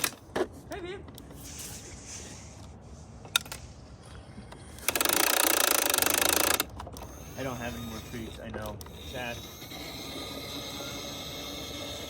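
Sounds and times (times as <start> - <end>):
small mechanism whirring and rattling: 0.0 - 0.2, 4.4 - 12.0.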